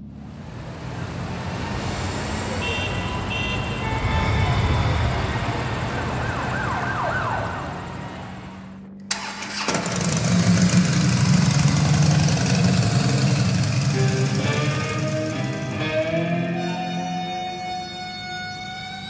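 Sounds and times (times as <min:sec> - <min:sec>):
motorcycle engine running: 0:09.6 - 0:16.0.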